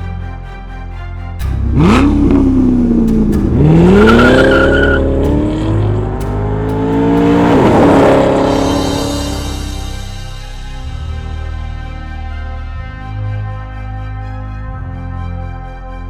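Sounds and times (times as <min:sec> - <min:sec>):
sports car engine revving: 0:01.4 - 0:10.1.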